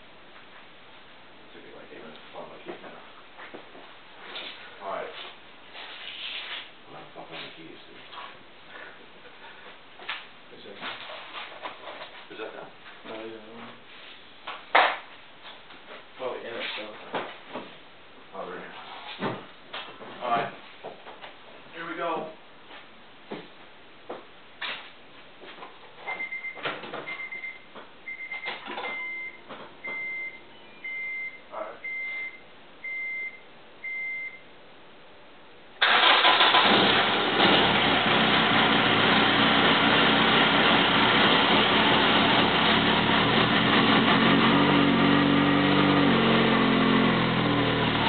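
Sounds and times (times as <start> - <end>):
car engine starting and running: 35.8 - 48.0.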